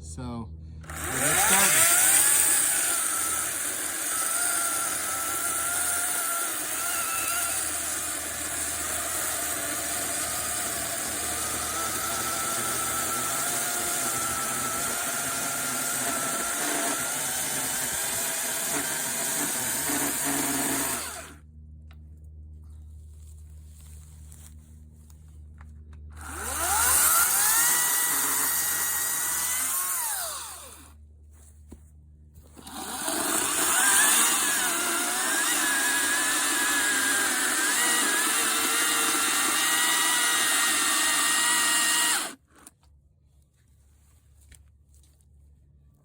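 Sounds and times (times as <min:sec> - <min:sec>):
chainsaw cutting through log: 0:00.8 - 0:21.4, 0:26.1 - 0:30.9, 0:32.5 - 0:42.4.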